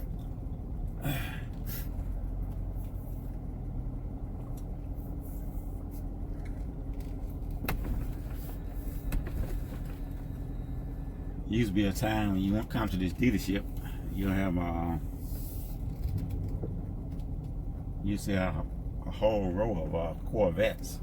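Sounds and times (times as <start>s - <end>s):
car engine droning: 0.0s - 21.0s.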